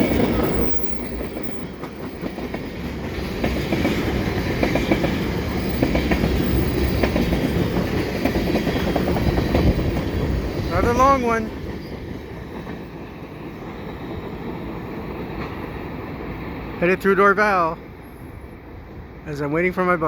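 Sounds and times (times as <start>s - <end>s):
wheels clicking over rail joints: 0.0s - 14.6s
freight train rumble: 0.0s - 20.0s.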